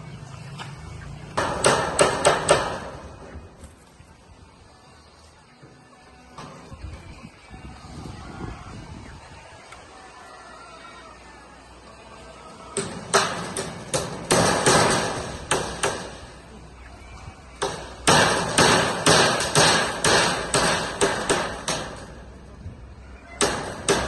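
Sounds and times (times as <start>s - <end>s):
hammer driving nails: 1.4s - 2.9s, 12.8s - 16.2s, 17.6s - 22.1s, 23.4s - 24.0s.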